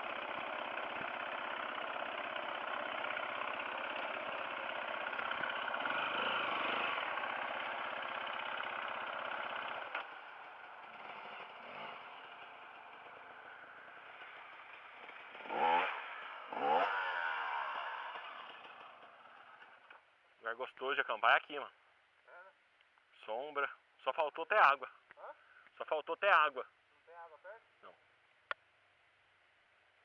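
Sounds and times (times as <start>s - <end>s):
dirt bike engine: 0.0s - 20.4s.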